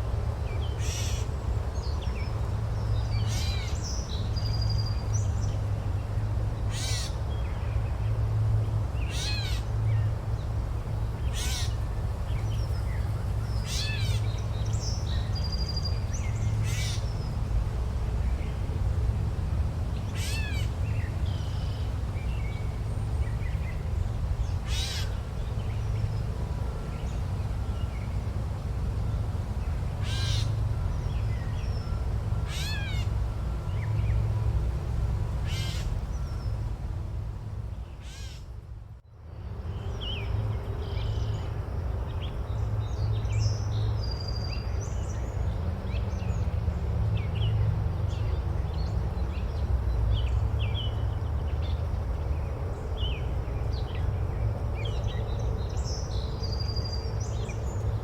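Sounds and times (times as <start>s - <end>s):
crow cawing: 6.7s - 7.1s.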